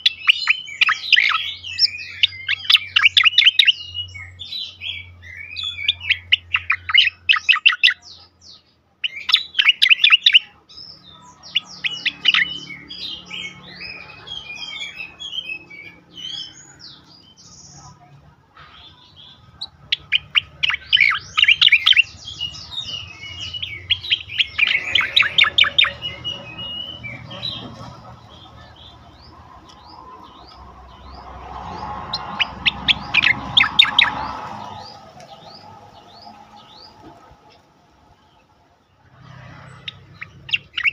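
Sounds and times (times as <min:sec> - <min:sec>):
bulbul singing trills: 0:00.0 - 0:40.9
bird chirps and whistles: 0:19.9 - 0:27.6.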